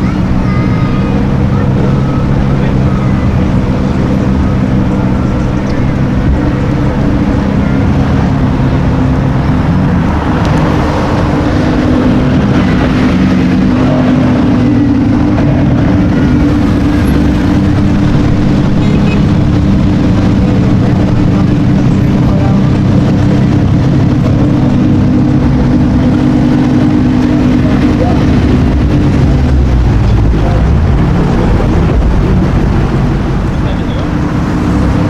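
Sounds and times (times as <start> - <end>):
car engine running at low revs: 0.0 - 35.0.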